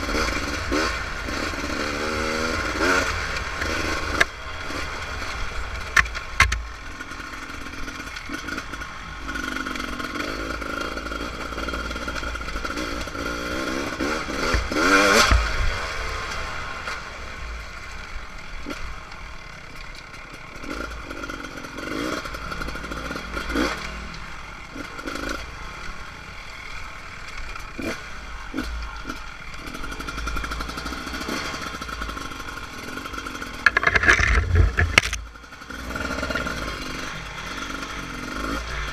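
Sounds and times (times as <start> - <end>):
dirt bike engine running: 17.8 - 38.9
knocks and clatter: 33.6 - 35.3.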